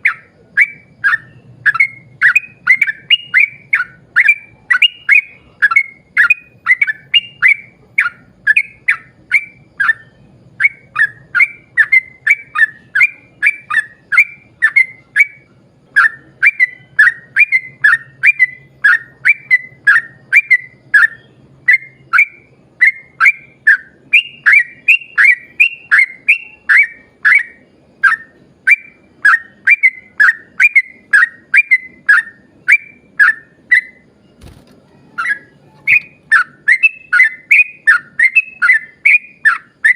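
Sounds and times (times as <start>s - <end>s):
bulbul whistled song: 0.0s - 39.9s.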